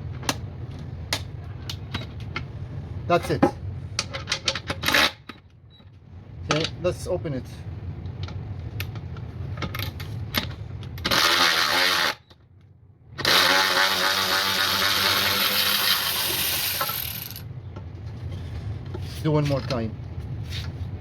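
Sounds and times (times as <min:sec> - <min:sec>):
electric ratchet motor running: 0:11.0 - 0:12.2, 0:13.2 - 0:17.4.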